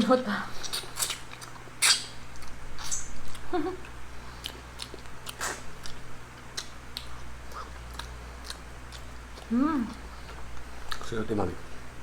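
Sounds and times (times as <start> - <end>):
chewing and biting food: 0.6 - 11.2.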